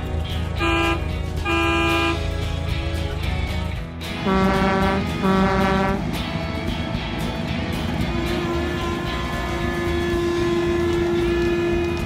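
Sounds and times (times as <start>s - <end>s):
background music: 0.0s - 12.0s
low engine rumble: 0.0s - 12.0s
cartoon truck horn honk: 0.6s - 2.2s, 4.2s - 6.0s, 8.1s - 12.0s.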